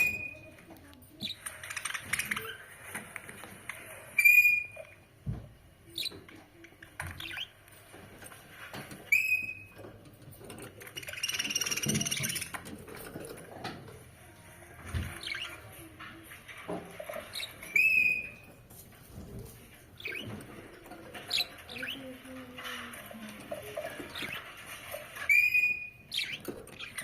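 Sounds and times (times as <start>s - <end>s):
budgerigars chirping and chattering: 4.1s - 4.9s, 7.0s - 7.7s, 10.7s - 13.1s, 16.6s - 18.5s, 20.0s - 22.2s, 23.6s - 27.0s.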